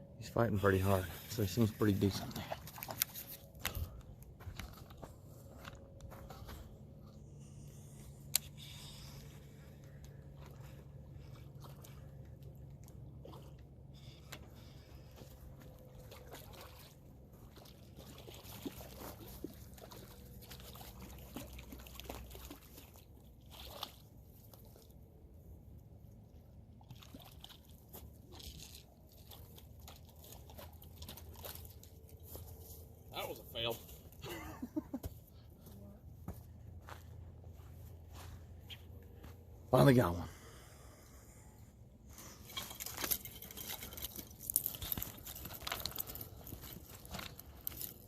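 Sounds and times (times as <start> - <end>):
low steady hum: 0.0 - 48.0
sloshing water: 1.0 - 4.0, 9.4 - 25.2, 26.1 - 33.0.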